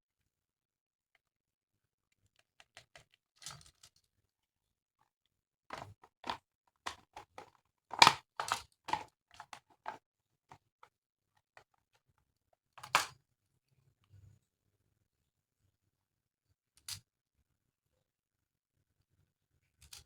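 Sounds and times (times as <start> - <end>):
plastic rustling: 5.7 - 10.0
plastic toy pieces clicking: 5.7 - 10.0, 12.8 - 13.1.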